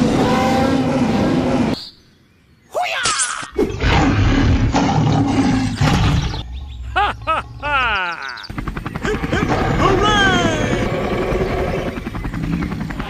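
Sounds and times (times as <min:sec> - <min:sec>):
rough animal-like roar: 0:03.6 - 0:06.4
warbling calls: 0:05.4 - 0:13.0.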